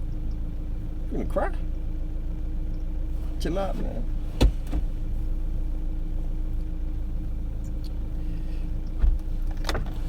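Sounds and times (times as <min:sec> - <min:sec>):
car engine humming: 0:00.0 - 0:10.0
soft thump: 0:04.4 - 0:05.0.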